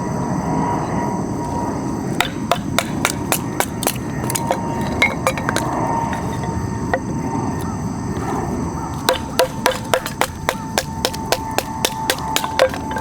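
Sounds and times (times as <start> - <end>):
hammer blows: 2.2 - 7.2, 9.0 - 13.0.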